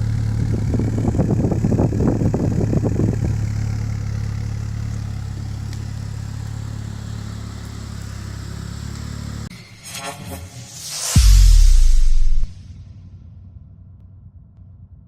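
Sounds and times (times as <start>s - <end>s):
car engine idling: 0.0s - 9.5s.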